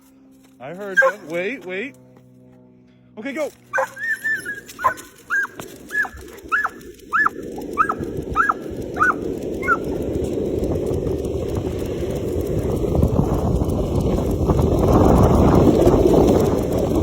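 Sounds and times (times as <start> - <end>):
dog yelping excitedly: 0.9 - 1.4, 3.7 - 10.0.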